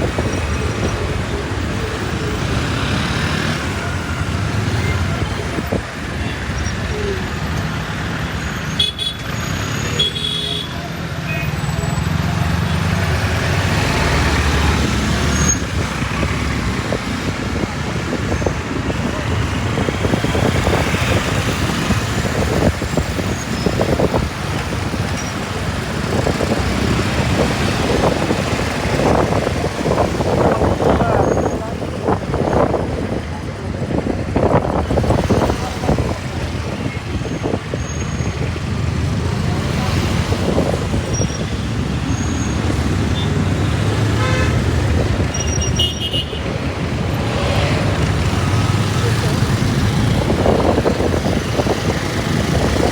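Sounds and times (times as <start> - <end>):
motorbike road and traffic noise: 0.0 - 52.9
vehicle horn honking: 44.2 - 44.7, 45.3 - 46.5.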